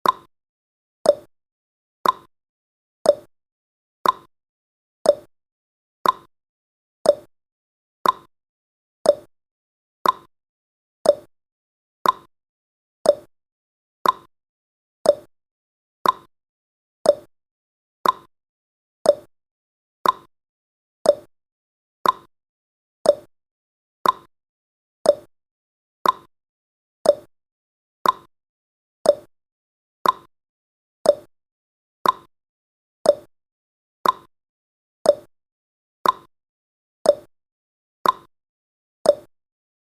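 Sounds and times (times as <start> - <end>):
clock ticking: 2.0 - 2.3, 4.0 - 4.3, 6.0 - 6.3, 8.0 - 8.3, 10.0 - 10.3, 12.0 - 12.3, 14.0 - 14.3, 15.1 - 15.3, 16.0 - 16.3, 18.0 - 18.3, 20.0 - 20.3, 22.0 - 22.3, 24.0 - 24.3, 25.1 - 25.3, 26.0 - 26.3, 27.1 - 27.3, 28.0 - 28.3, 29.1 - 29.3, 30.0 - 30.3, 32.0 - 32.3, 33.1 - 33.3, 34.0 - 34.3, 36.0 - 36.3, 38.0 - 38.3, 39.1 - 39.3.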